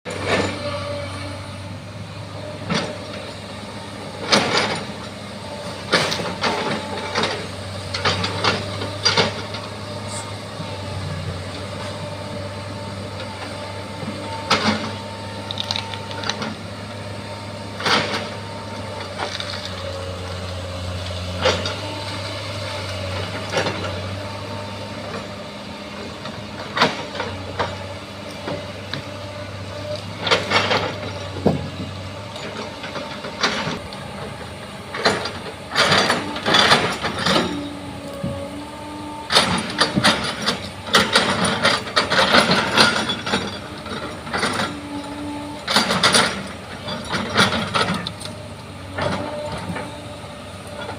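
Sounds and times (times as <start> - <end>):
bulldozer diesel engine running: 0.1 - 50.9
sharp metal clanks and knocks: 34.9 - 38.4, 39.3 - 44.9, 45.7 - 48.3.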